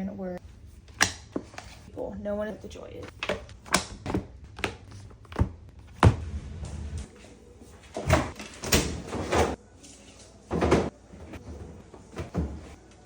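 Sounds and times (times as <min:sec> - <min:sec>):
cupboard doors and drawers shutting: 0:08.0 - 0:09.6, 0:10.5 - 0:12.8.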